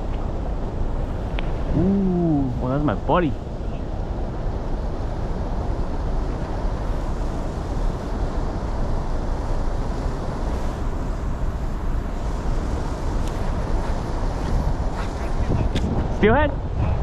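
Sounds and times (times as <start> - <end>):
wind buffeting the microphone: 0.0 - 17.0.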